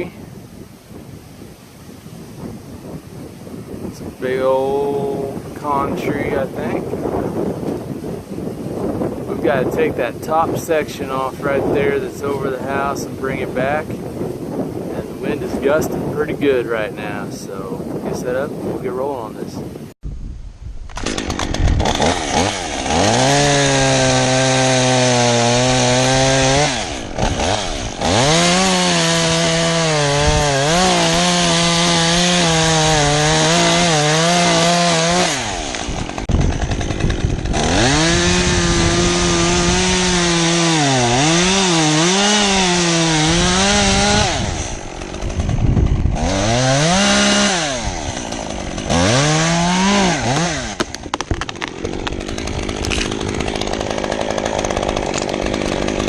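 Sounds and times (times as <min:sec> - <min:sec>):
chainsaw cutting wood: 0:20.9 - 0:56.0.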